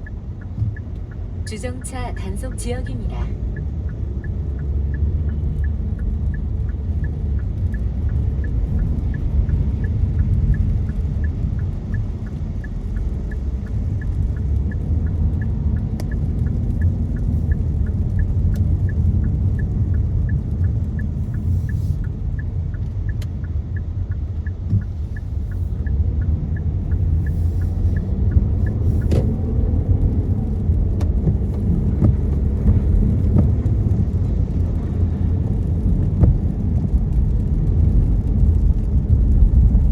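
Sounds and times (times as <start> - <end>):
light even ticking: 0.0 - 36.6
car road and engine rumble: 0.0 - 39.9.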